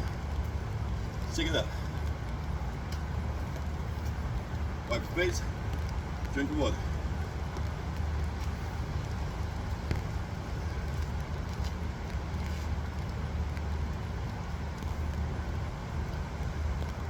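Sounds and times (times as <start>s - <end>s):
light hiss: 0.0s - 17.0s
low rumbling: 0.0s - 17.0s
faint clicks: 1.9s - 4.2s.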